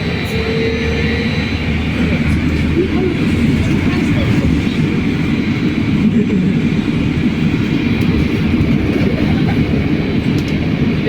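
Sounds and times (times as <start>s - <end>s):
faint high whine: 0.0s - 5.6s
trolleybus cabin rumble: 0.0s - 11.0s.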